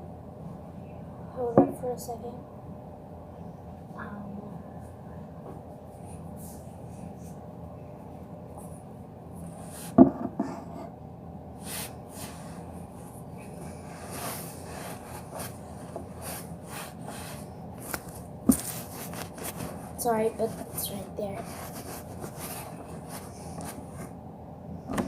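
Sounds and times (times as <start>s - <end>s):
handling and rubbing noises: 11.6s - 24.2s.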